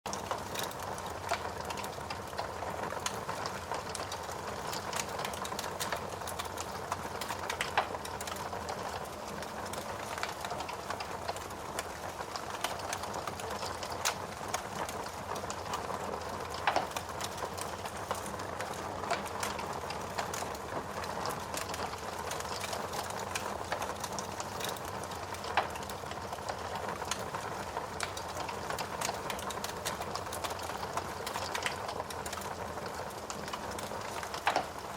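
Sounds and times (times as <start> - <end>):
fire hissing and crackling: 0.1 - 34.9
fire pops: 16.5 - 32.6, 33.4 - 34.9.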